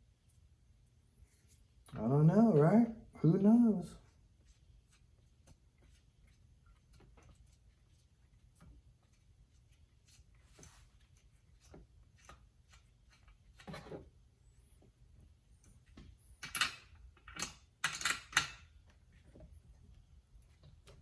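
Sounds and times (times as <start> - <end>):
tools and metal parts clattering: 16.4 - 18.7.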